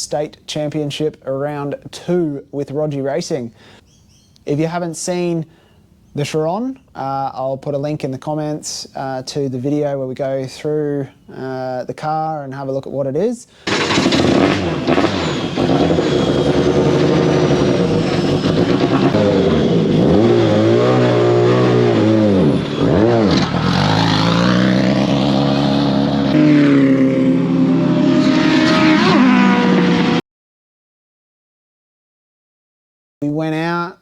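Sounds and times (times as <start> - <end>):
race car engine running hard: 13.7 - 30.2.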